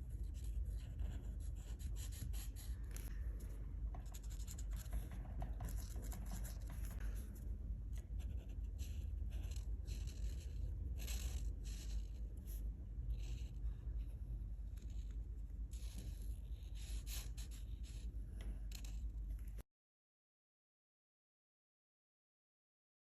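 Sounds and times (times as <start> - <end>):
low steady rumble: 0.0 - 19.6
colouring tool scratching paper: 0.2 - 3.1, 3.9 - 7.2, 8.0 - 13.7, 14.8 - 18.1.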